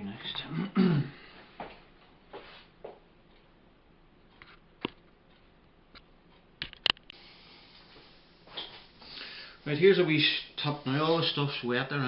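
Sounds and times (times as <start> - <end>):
clicks and taps: 4.4 - 7.2.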